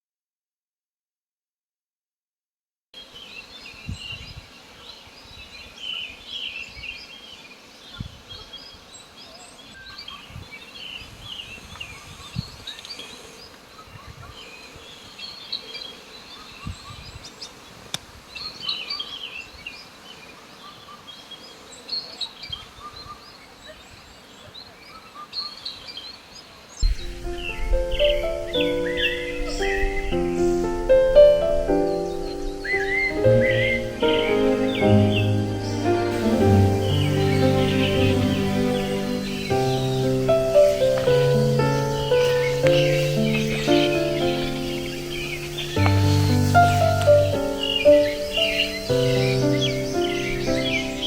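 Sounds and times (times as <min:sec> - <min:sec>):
small birds chirping: 0:03.0 - 0:51.0
soft outdoor hiss: 0:03.0 - 0:51.0
low thumps: 0:26.8 - 0:31.9, 0:33.2 - 0:47.7.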